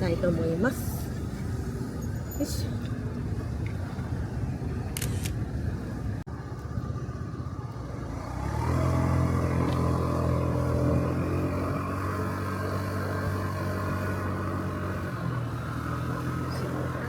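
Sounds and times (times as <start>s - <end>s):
road noise: 0.0s - 17.0s
scooter engine hum: 5.5s - 17.0s.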